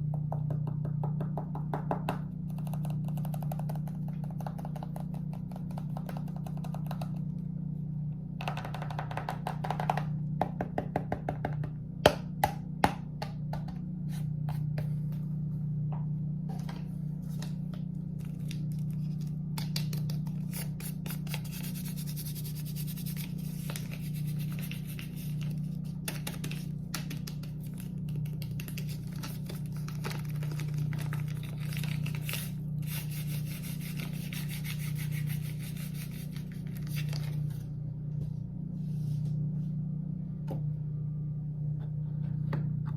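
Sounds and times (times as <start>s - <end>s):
constant low hum: 0.0s - 42.9s
rubbing and scratching on surface: 20.0s - 26.6s, 28.6s - 37.5s.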